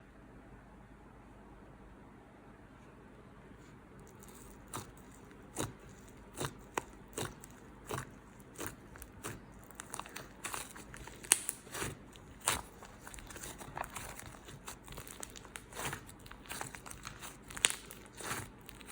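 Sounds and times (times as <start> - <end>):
slime crackling and popping: 4.1 - 18.9.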